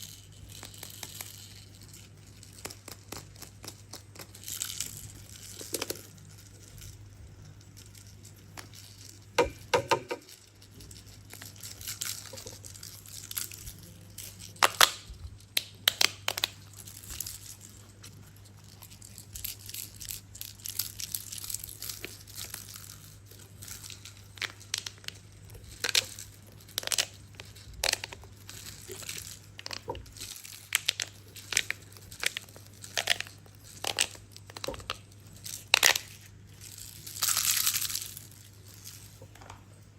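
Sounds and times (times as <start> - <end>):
faint low hum: 0.0 - 39.9
plastic crinkling and clicking: 7.7 - 39.8.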